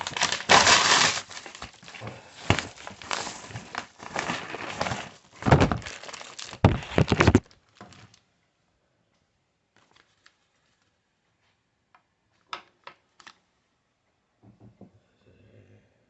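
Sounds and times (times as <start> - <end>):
rustling of packaging: 0.0 - 8.3, 9.8 - 11.0.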